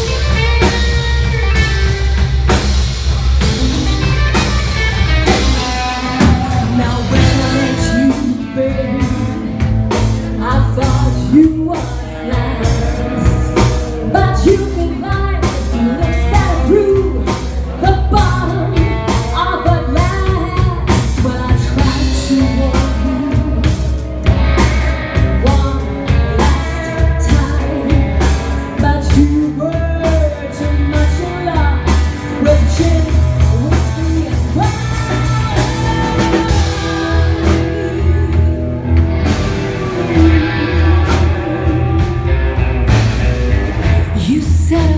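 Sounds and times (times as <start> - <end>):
lead guitar bending notes: 0.0 - 10.5, 34.6 - 44.3
bass: 0.0 - 44.9
drum kit: 0.0 - 44.9.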